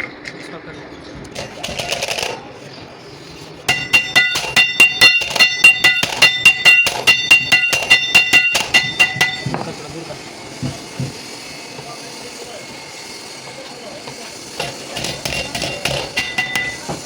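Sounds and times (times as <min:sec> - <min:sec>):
hammer striking steel: 0:03.7 - 0:17.0.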